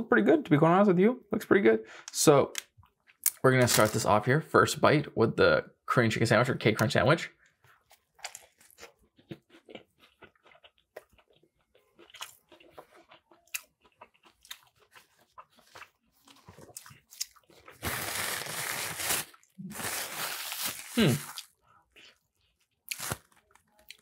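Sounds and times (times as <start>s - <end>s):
crunchy chewing: 7.7s - 18.5s.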